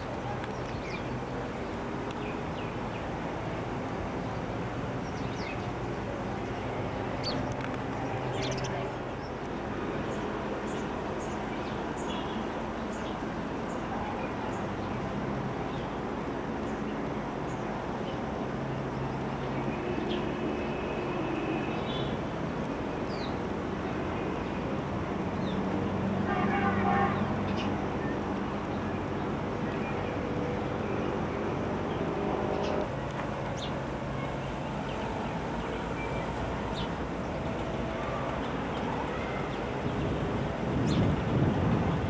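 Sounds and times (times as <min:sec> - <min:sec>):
birds chirping: 0:00.0 - 0:03.2, 0:04.2 - 0:09.4, 0:25.4 - 0:42.0.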